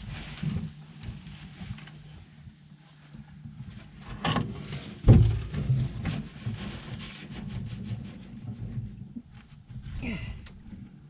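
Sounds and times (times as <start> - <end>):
heavy thump: 5.0 - 5.6.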